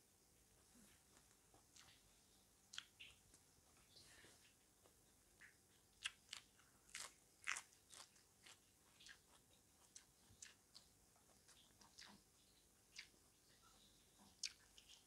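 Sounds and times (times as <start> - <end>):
person crunching lettuce: 6.0 - 10.6.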